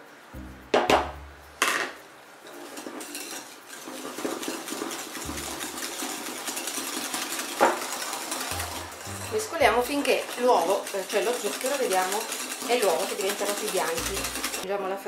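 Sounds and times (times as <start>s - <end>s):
sharp knock: 0.7s - 1.9s
whisk clattering against bowl: 2.7s - 14.6s.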